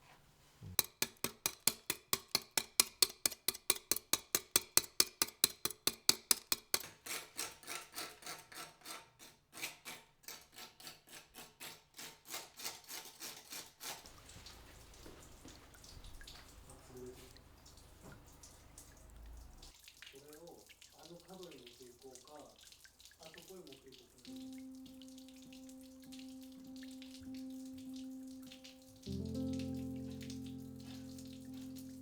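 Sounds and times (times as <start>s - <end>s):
hand tool rasping strokes: 0.8s - 14.2s.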